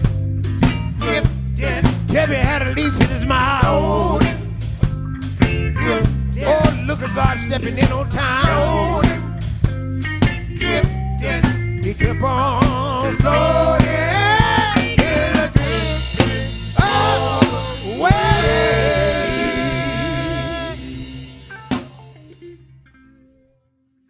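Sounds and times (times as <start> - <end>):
gospel band playing: 0.0 - 22.8
people singing: 0.9 - 4.6, 5.7 - 9.4, 10.6 - 21.4
drum hit: 13.8 - 22.2.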